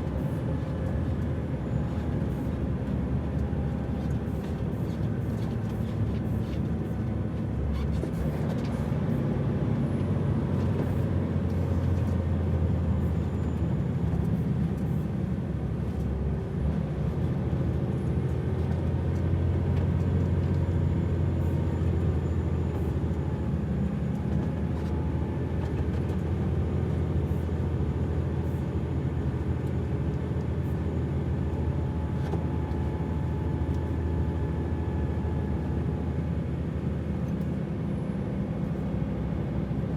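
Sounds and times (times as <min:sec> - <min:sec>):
truck diesel engine droning: 0:00.0 - 0:39.9.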